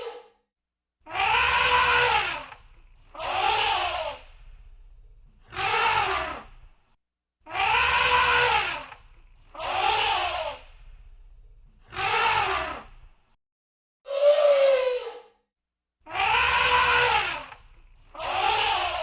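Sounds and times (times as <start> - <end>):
elephant trumpeting: 1.1 - 4.2, 7.5 - 9.0, 16.1 - 17.6.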